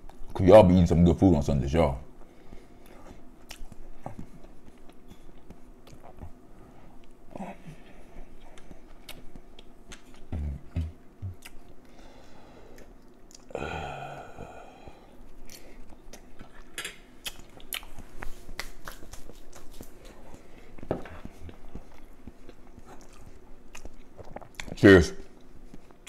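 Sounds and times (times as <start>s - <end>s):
man chewing: 2.2s - 26.0s
man humming: 10.3s - 11.5s, 13.5s - 15.1s.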